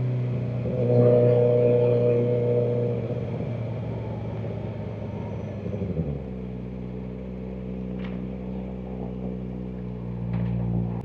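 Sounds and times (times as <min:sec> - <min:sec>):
wind and road noise: 0:00.0 - 0:11.0
motorcycle engine idling: 0:03.6 - 0:11.0.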